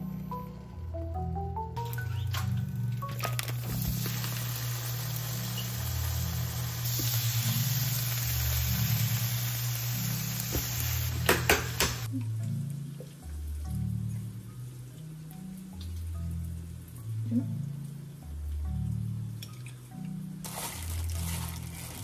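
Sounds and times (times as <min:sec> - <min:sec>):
duck slices sizzling in pan: 0:03.3 - 0:12.1.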